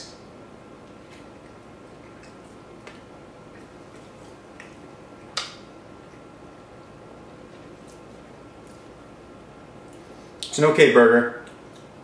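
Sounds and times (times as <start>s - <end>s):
quiet room hum: 0.0s - 12.0s
mouth clicks while chewing: 11.4s - 12.0s.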